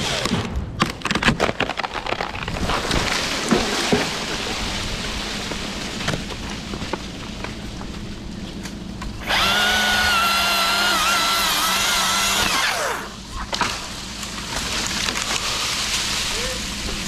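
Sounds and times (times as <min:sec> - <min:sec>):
crackling background noise: 0:00.8 - 0:09.2
chainsaw running at full throttle: 0:09.2 - 0:13.2.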